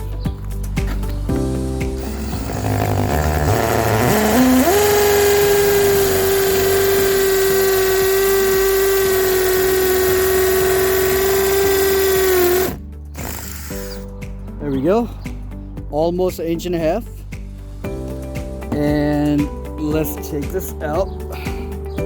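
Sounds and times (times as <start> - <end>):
hammer drill boring into brick: 2.0 - 14.1.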